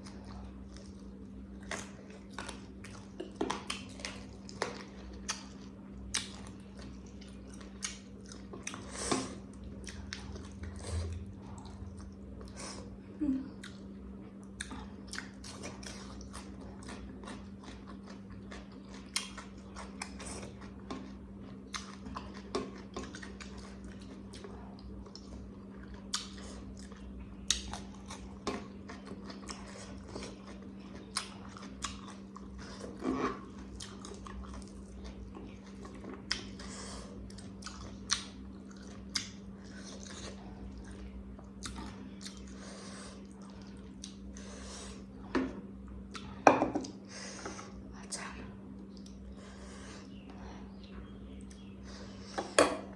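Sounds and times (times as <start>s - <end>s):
chewing and biting: 0.0s - 12.6s, 13.6s - 45.2s
steady low hum: 0.0s - 52.9s.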